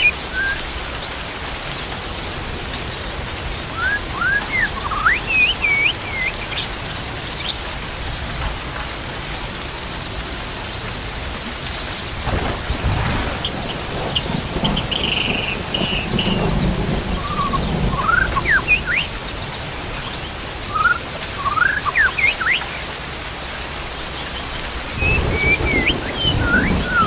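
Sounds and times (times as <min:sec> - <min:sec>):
rain hissing: 0:00.0 - 0:27.0
low rumbling: 0:11.9 - 0:19.8, 0:24.5 - 0:27.0
birds chirping and calling: 0:12.1 - 0:22.9, 0:24.4 - 0:27.0.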